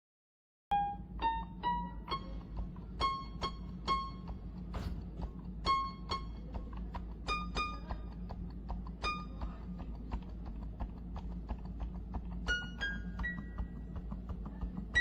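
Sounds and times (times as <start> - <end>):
keyboard melody: 0.7 - 4.6
steady low hum: 0.7 - 15.0.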